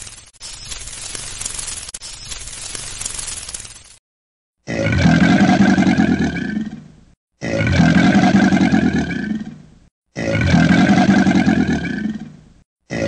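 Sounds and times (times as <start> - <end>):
large animal roaring: 4.6 - 13.0.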